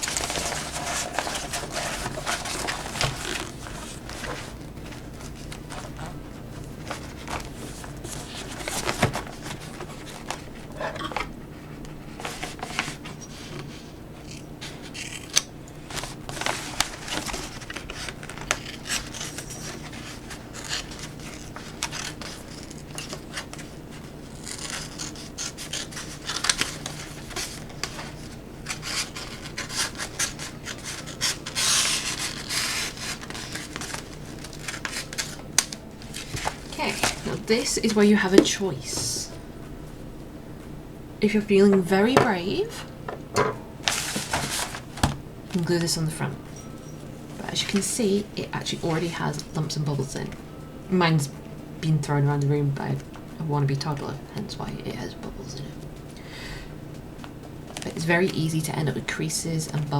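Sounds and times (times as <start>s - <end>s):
sheet rustling: 0.0s - 14.9s, 15.8s - 39.5s, 43.8s - 49.5s
scissors cutting film: 14.2s - 37.2s.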